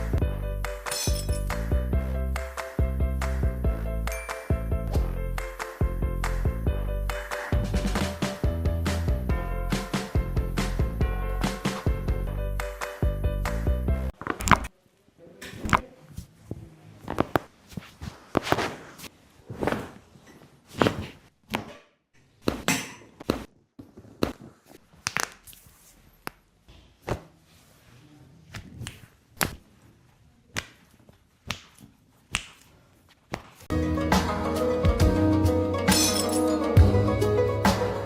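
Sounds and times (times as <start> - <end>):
hands thumping and slapping body: 31.4 - 32.6.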